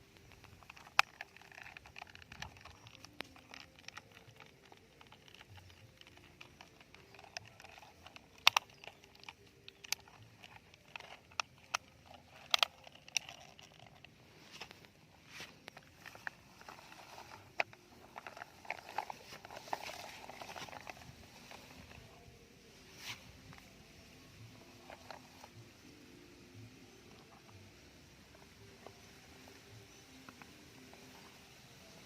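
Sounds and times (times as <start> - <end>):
plastic toys clicking: 0.0 - 15.0, 15.6 - 22.2.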